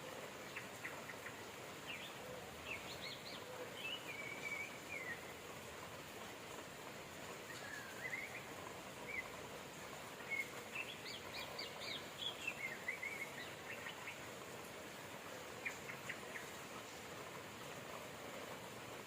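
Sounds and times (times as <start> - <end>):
steady rain hiss: 0.0 - 19.0
small birds chirping: 0.4 - 6.6, 7.3 - 18.5.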